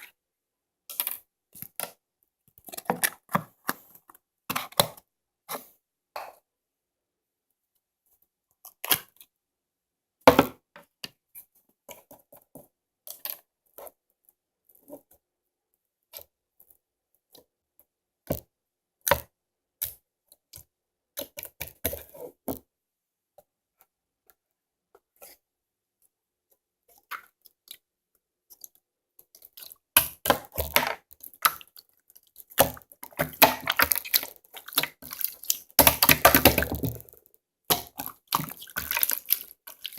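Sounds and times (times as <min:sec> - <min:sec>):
slime squishing and popping: 0:29.6 - 0:39.9
slime crackling: 0:30.4 - 0:39.9.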